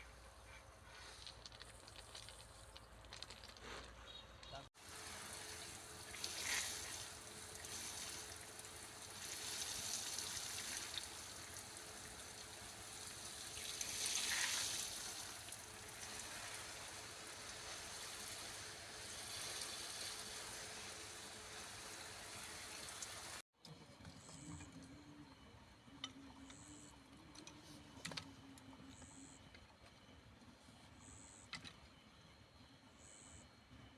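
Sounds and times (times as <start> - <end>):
water pouring: 4.8 - 23.4.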